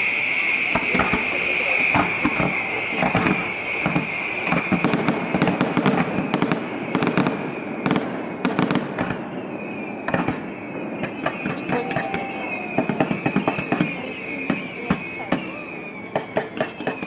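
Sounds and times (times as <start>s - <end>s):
steady high hiss: 0.0s - 6.0s, 10.8s - 17.0s
fireworks bangs and crackles: 0.0s - 17.0s.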